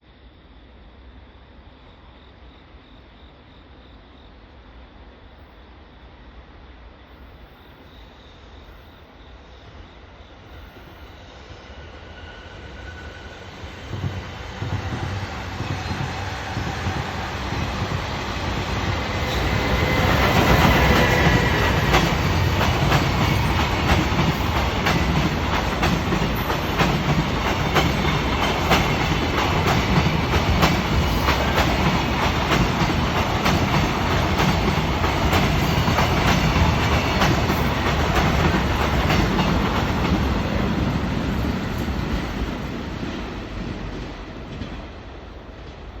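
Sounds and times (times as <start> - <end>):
freight train rumbling past: 8.4 - 46.0.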